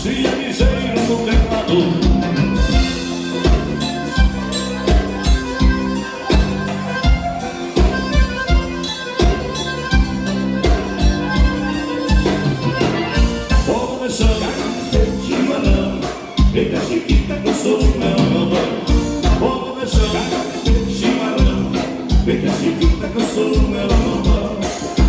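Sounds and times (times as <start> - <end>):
accordion: 0.0 - 25.0
drum kit beat: 0.0 - 25.0
electric bass: 0.0 - 25.0
keyboard chords: 0.0 - 25.0.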